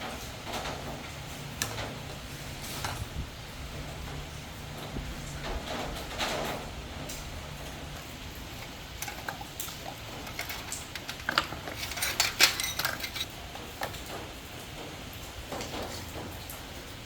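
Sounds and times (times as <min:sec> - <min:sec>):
metal tools clinking: 0:08.4 - 0:14.0.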